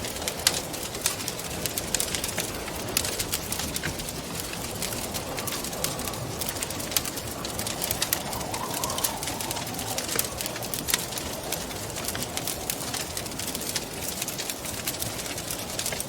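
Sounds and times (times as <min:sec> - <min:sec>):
wood fire crackling: 0:00.0 - 0:16.0
wind rushing: 0:04.6 - 0:12.7
faint wavering whistle: 0:07.4 - 0:11.5.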